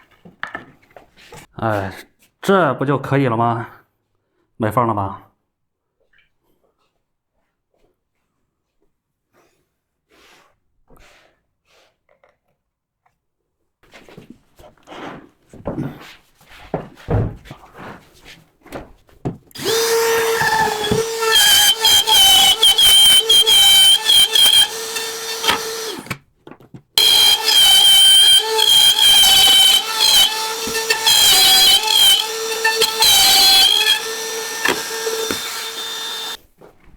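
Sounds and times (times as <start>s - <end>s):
power drill running: 19.6s - 26.2s, 27.0s - 36.4s.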